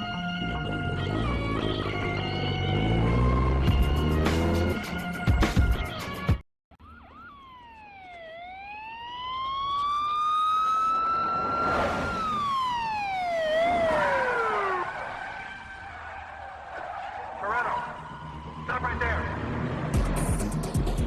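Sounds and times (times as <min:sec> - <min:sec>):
siren wailing: 0:06.8 - 0:19.8.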